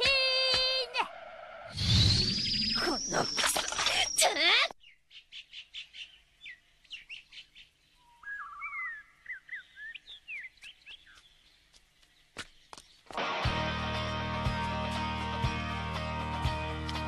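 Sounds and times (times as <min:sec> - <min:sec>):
birds chirping and trilling: 0:00.8 - 0:13.2
music: 0:13.2 - 0:17.0.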